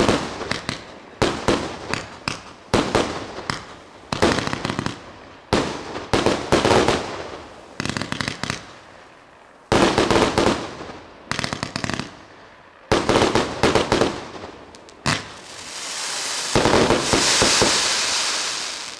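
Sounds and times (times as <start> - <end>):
firework crackling pops: 0.0 - 5.0, 5.6 - 8.8, 9.7 - 12.2, 12.9 - 18.9
firework crackling hiss: 13.2 - 18.9.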